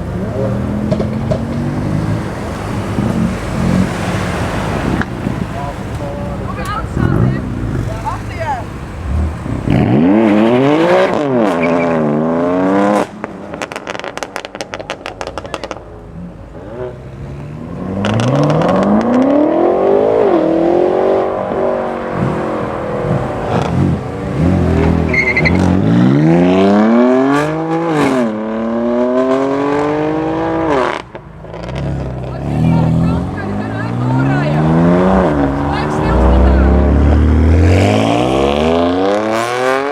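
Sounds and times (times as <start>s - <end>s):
cars accelerating hard: 0.0s - 39.9s
exhaust pops and crackles: 0.2s - 3.6s, 12.9s - 16.1s.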